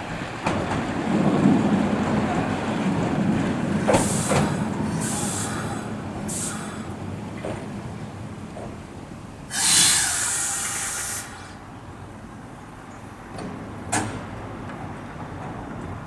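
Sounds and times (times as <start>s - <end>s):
compressed air hiss: 3.9s - 7.0s, 9.5s - 11.7s.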